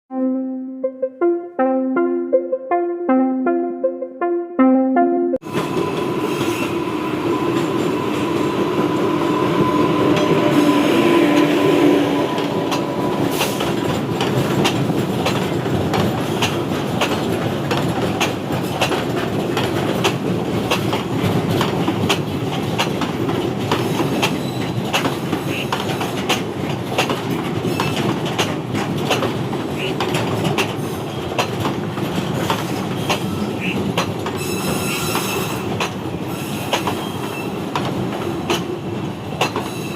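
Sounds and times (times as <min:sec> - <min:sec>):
freight train rumbling past: 0:05.4 - 0:39.9
wheels clattering over rail joints: 0:12.2 - 0:39.9.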